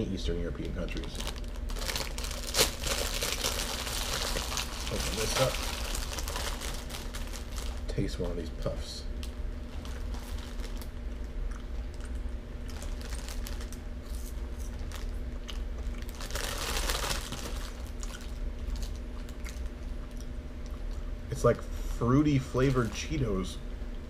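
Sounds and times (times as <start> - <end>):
person chewing crunchy snack: 9.7 - 21.1.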